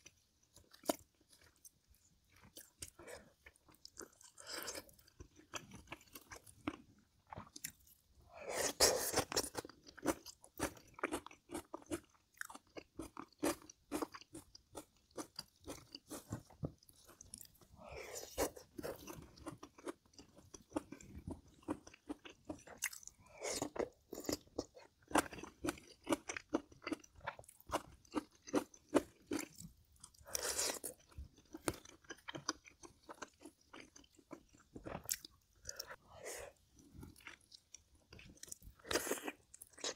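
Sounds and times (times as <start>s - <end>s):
person chewing and biting: 8.5s - 36.0s, 36.8s - 39.9s.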